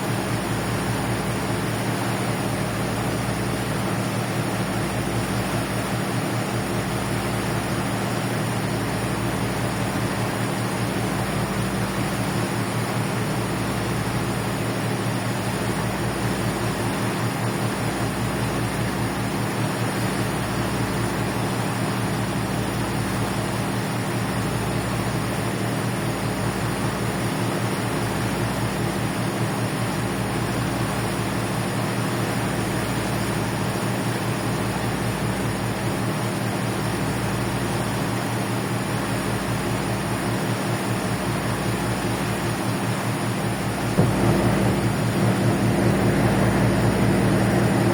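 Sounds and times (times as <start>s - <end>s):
ship engines humming: 43.7s - 47.9s.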